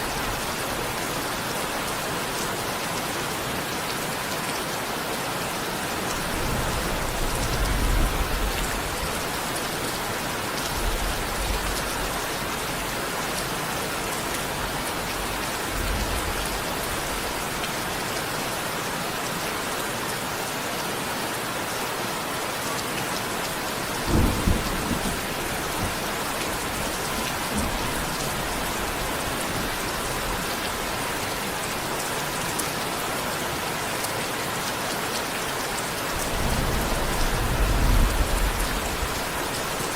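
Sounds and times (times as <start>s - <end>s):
steady rain falling: 0.0s - 39.9s
distant thunder rumbling: 6.2s - 9.7s, 23.8s - 31.0s, 36.2s - 39.9s
loud thunder clap: 36.2s - 39.3s.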